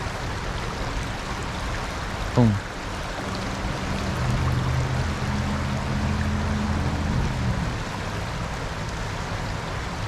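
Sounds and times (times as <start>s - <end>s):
stream water running: 0.0s - 10.0s.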